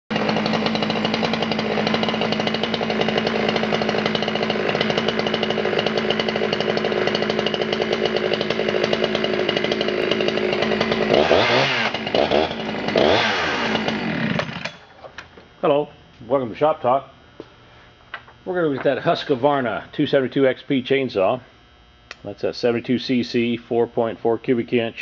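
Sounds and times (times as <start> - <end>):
chainsaw idling and revving: 0.1 - 14.9.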